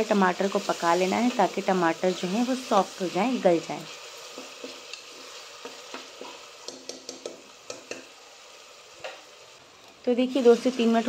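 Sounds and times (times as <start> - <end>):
onions and tomatoes sizzling: 0.0 - 11.0
spoon clicking against pot: 6.6 - 8.1.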